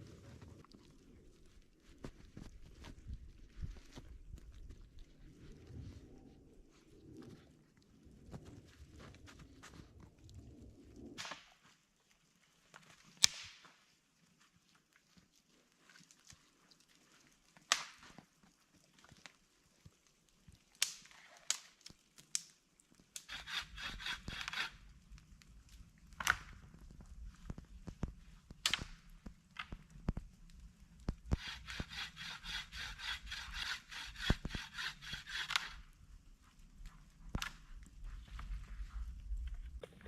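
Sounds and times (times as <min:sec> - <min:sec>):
rasping strokes on wood: 0:23.3 - 0:24.8, 0:31.3 - 0:35.8.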